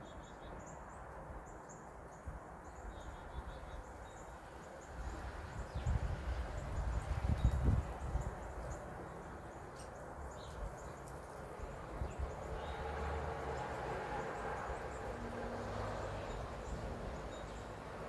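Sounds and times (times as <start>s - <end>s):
faint bird chirps: 0.0s - 5.0s.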